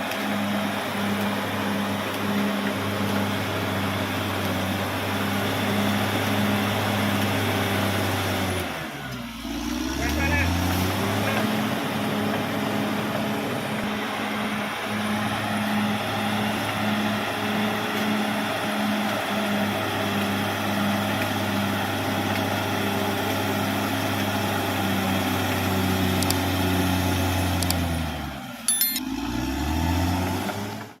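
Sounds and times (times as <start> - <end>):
bulldozer diesel engine running: 0.0 - 30.9
metallic clink: 28.7 - 29.0.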